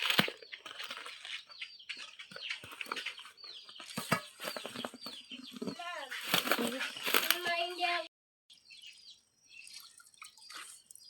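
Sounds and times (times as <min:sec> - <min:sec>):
chicks peeping: 0:00.3 - 0:08.0
clicks and rustling: 0:03.8 - 0:07.6.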